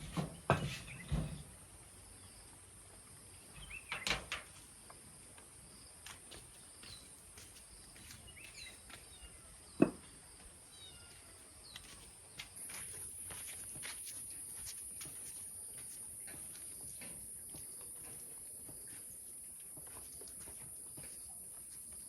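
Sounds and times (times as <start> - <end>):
knocks: 0.1 - 1.4
bird chirps: 3.5 - 4.1, 8.0 - 9.4.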